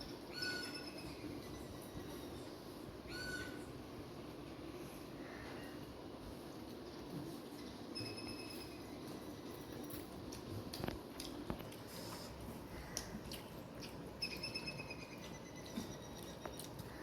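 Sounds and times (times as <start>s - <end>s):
faint high squeak: 3.1s - 3.6s
person chewing and mixing food: 8.7s - 17.0s.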